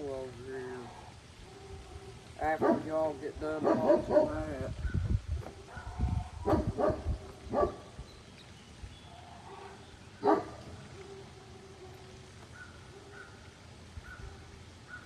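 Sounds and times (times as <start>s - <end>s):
geese honking: 0.0s - 4.4s.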